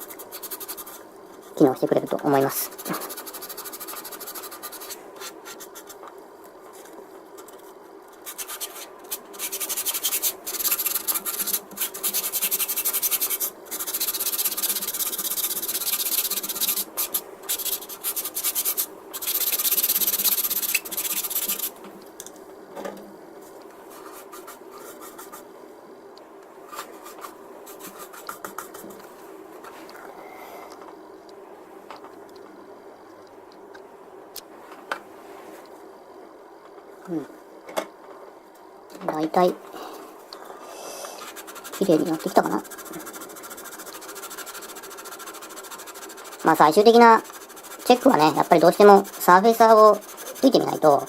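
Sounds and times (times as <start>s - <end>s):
sanding stick rubbing plastic: 0.0s - 1.6s, 2.7s - 6.0s, 8.2s - 21.7s, 26.8s - 28.9s, 41.2s - 51.0s
faint steady hum: 0.0s - 51.0s.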